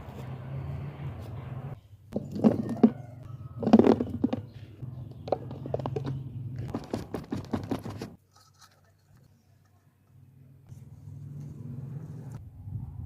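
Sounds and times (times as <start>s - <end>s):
crunching and scraping knocks: 2.1s - 8.2s.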